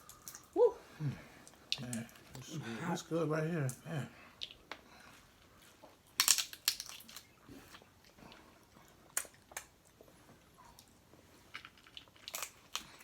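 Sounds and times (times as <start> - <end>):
crab shells cracking: 6.0 - 7.4, 11.5 - 13.0.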